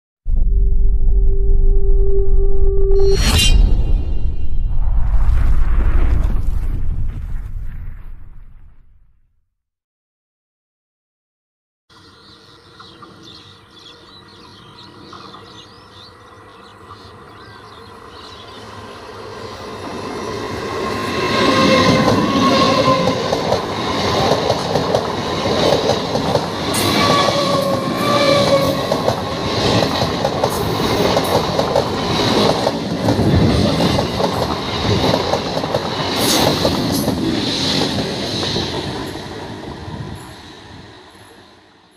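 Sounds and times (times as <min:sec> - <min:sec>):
electric train rumbling past: 0:12.0 - 0:41.9.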